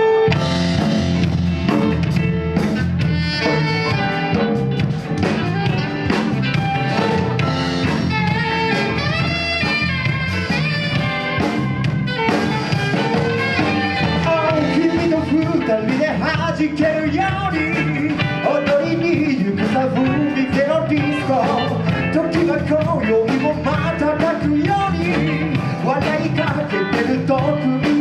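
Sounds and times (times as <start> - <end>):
saxophone: 0.0 - 19.4, 20.0 - 22.2
drum kit: 0.0 - 28.0.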